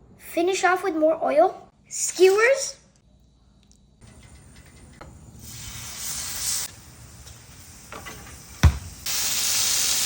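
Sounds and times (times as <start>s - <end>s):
chicken sizzling in hot oil: 5.4s - 10.0s.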